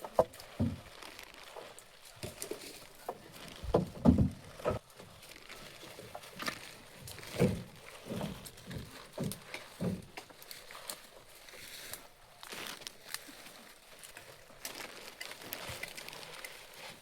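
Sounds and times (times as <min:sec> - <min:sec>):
dull thumps and knocks: 0:00.0 - 0:01.1, 0:03.0 - 0:04.9, 0:07.1 - 0:10.4.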